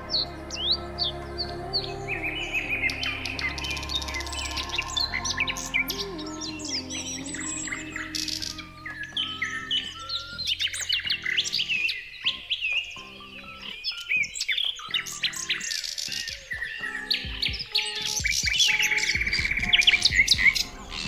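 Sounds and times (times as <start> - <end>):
small birds chirping: 0.0 - 21.0
soft background music: 0.0 - 21.0.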